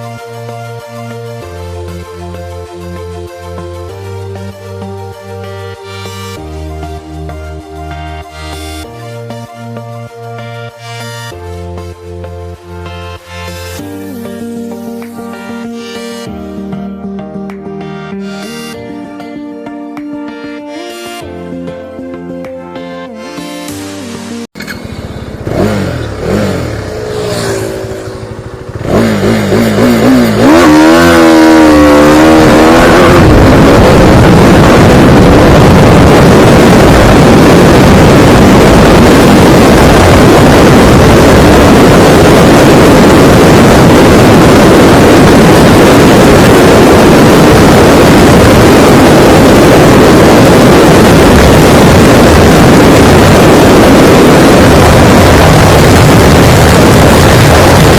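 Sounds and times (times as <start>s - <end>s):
motorcycle engine accelerating: 24.6s - 57.9s
wind noise: 25.5s - 57.9s.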